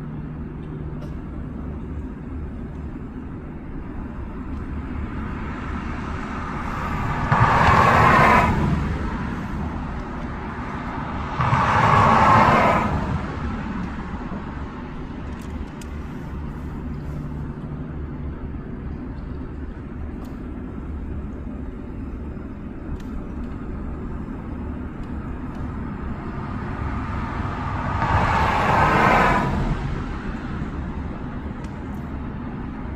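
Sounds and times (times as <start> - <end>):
steady low rumble: 0.0 - 32.9
vehicles passing: 0.0 - 32.9.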